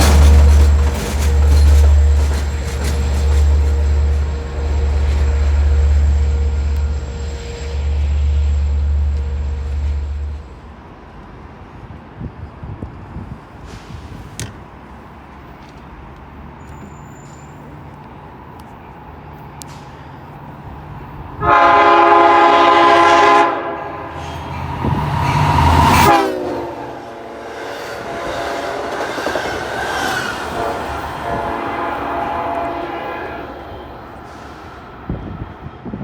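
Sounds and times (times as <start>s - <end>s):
train rumbling: 0.0s - 36.0s
train air horn blasts: 21.4s - 35.4s.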